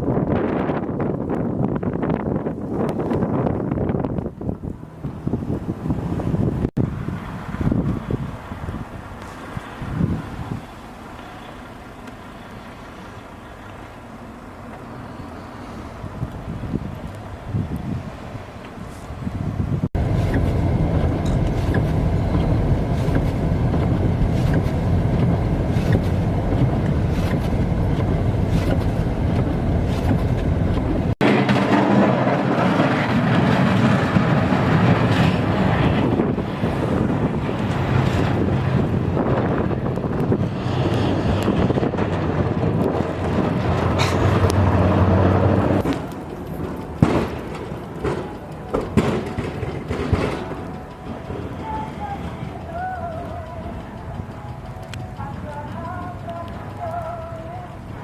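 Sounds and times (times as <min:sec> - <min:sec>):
vehicle engine rumbling: 0:00.0 - 0:58.0.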